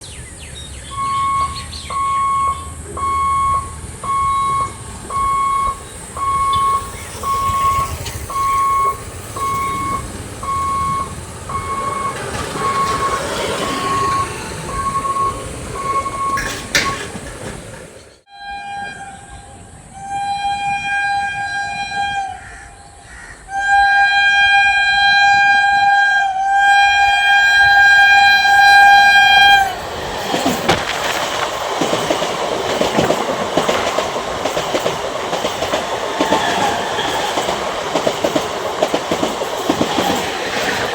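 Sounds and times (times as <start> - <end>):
train noise: 0.0 - 40.9
level crossing alarm beeping: 0.8 - 19.1
train horn: 4.3 - 17.1, 18.3 - 22.8, 23.5 - 29.8, 36.1 - 37.5.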